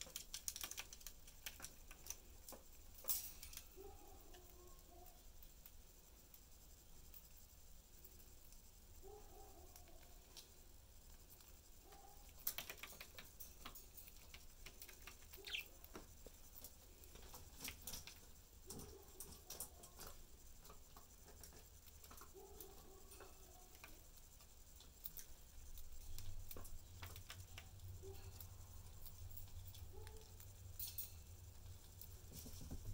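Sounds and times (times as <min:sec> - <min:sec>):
budgies clicking and tapping: 0:00.0 - 0:05.2, 0:11.2 - 0:30.9
soft bird chirps: 0:14.1 - 0:16.6.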